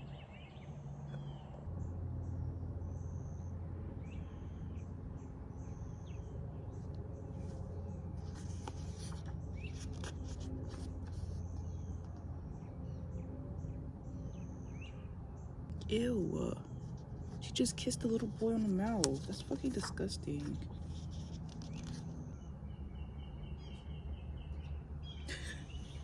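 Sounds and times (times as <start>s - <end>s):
steady low hum: 0.0s - 26.0s
scratchy rustling: 7.3s - 12.0s, 16.8s - 22.3s
birds calling: 15.8s - 26.0s.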